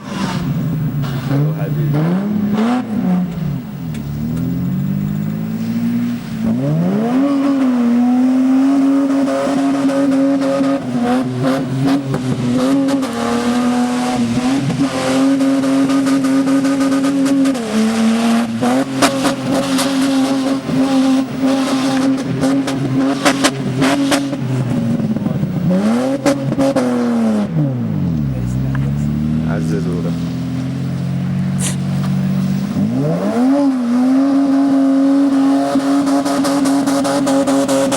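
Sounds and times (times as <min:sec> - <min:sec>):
car engine revving hard: 0:00.0 - 0:37.9.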